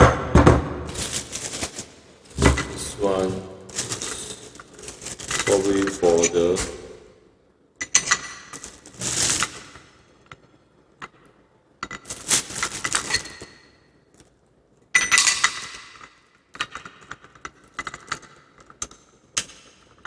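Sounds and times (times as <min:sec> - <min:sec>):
rustling: 0:00.9 - 0:06.9, 0:08.6 - 0:09.8
metal and plastic parts clinking: 0:03.7 - 0:06.7.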